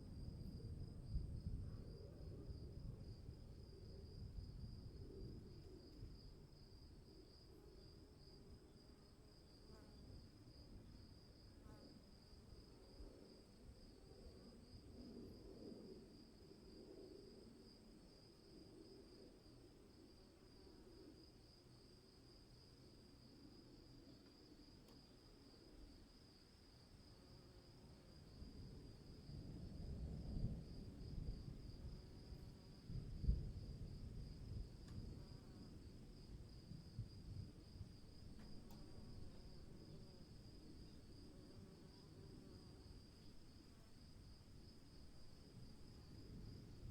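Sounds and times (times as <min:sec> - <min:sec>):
crickets trilling: 0:24.6 - 0:46.9.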